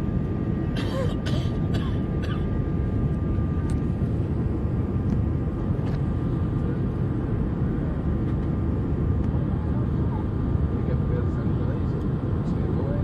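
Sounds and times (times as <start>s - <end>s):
aircraft cabin engine rumble: 0.0s - 13.0s.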